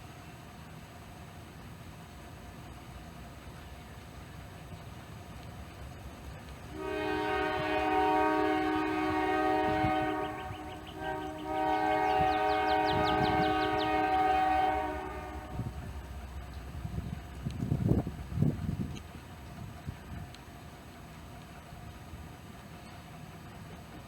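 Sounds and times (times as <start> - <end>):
locomotive air horn: 6.7 - 16.1.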